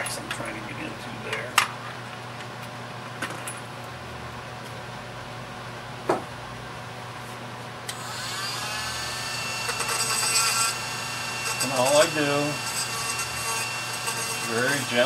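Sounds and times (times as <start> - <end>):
rotary tool grinding wood: 7.9 - 15.0
rotary tool whining: 7.9 - 15.0.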